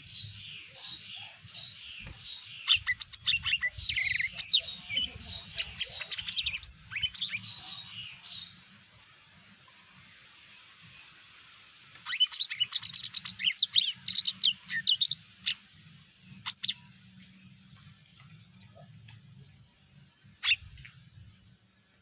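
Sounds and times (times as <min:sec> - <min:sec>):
bird singing whistled notes: 0:01.6 - 0:08.6.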